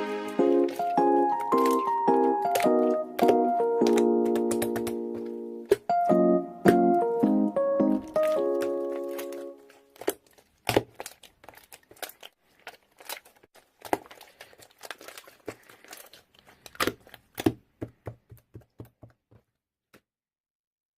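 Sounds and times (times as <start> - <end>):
crinkling from handling: 0.1 - 7.2, 7.8 - 17.5
clicks: 0.6 - 9.8.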